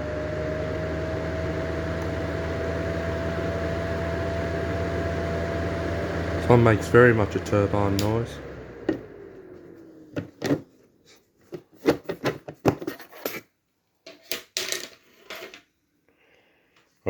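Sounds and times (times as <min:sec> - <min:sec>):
exhaust fan winding down: 0:00.0 - 0:10.5.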